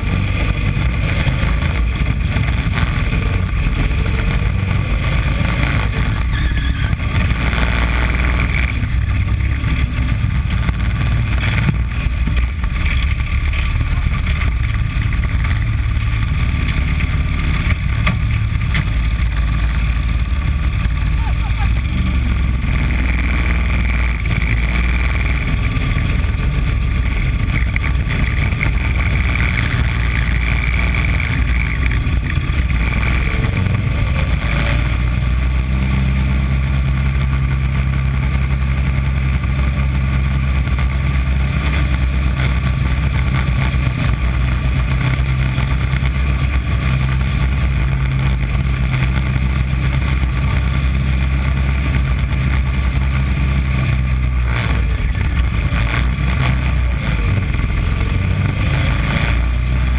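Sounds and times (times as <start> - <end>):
small race car engine: 0.0 - 59.9.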